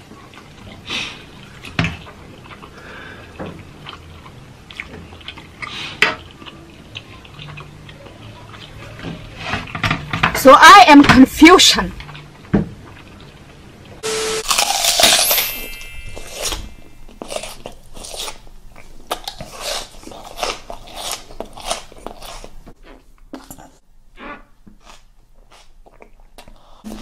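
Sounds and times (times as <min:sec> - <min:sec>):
crunching and chewing raw onion: 0:00.0 - 0:10.1, 0:12.0 - 0:27.0.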